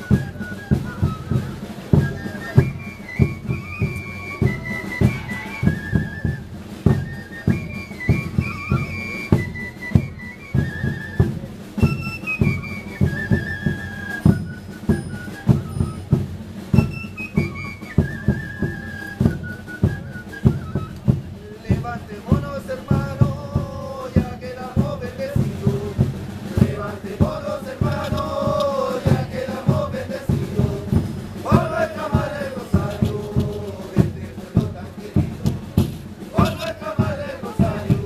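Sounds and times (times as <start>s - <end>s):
high flute melody: 0.0s - 21.7s, 25.9s - 34.6s
drums beating fast rhythm: 0.0s - 38.0s.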